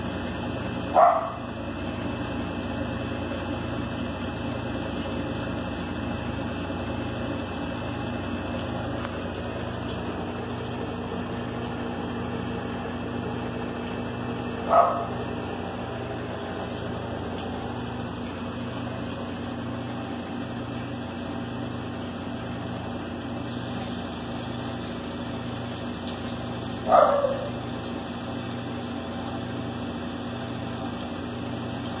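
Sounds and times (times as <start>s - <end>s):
low mechanical hum: 0.0s - 32.0s
dog barking: 0.9s - 1.5s, 14.6s - 15.2s, 26.8s - 27.6s.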